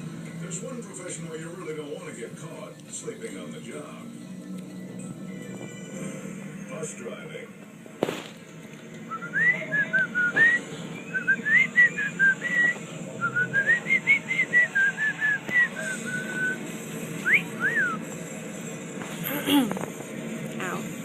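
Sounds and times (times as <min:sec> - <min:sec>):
cockatiel whistling: 0:09.1 - 0:16.6, 0:17.2 - 0:18.0.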